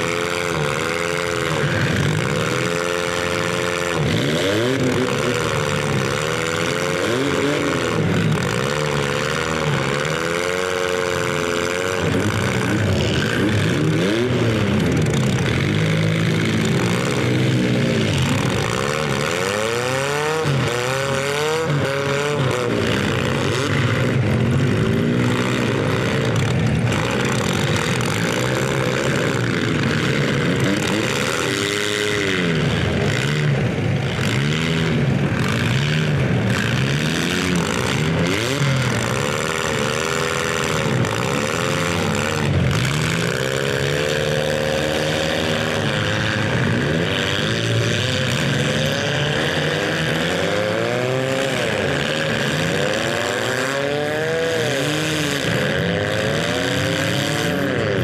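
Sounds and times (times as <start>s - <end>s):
car engines revving hard: 0.0s - 58.0s.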